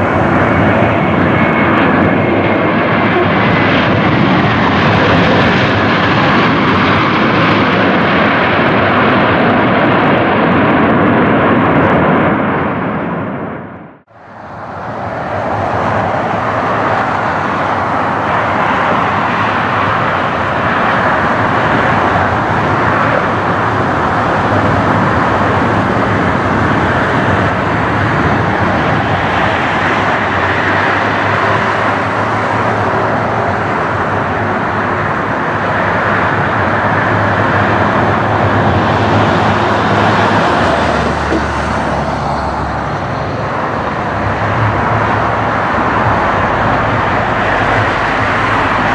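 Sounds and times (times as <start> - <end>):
jet engines roaring: 0.0 - 48.9.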